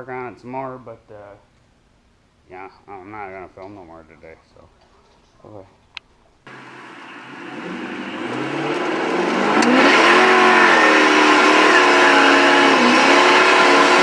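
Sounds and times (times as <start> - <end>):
car engine accelerating: 6.5 - 14.0.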